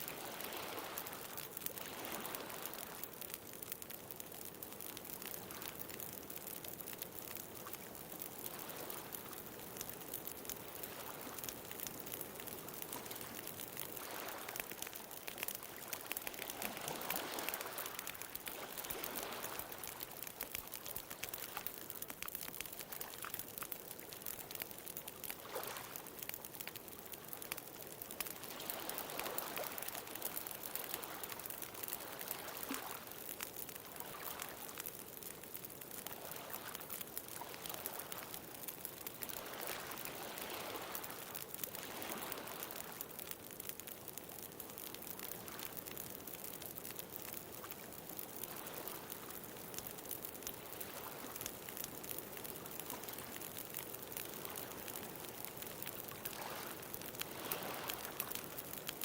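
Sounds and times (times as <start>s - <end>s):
wood bonfire crackling: 0.0s - 59.0s.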